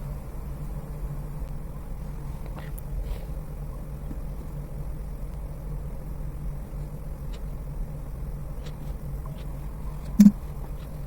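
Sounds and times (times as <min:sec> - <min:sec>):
low hum and rumble: 0:00.0 - 0:11.0.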